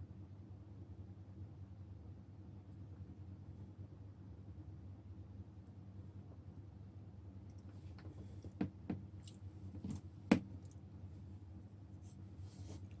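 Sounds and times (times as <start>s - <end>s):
light clicks and taps: 7.4s - 10.9s.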